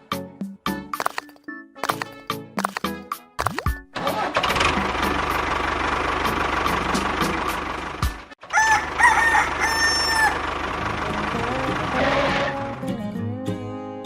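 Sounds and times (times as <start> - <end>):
rooster crowing: 8.4 - 10.5.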